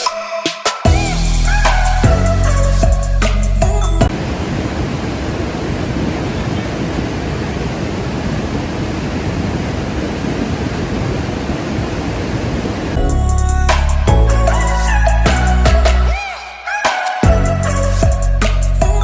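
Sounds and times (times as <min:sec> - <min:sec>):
waterfall rushing: 0:04.1 - 0:13.0
background music: 0:13.0 - 0:19.0.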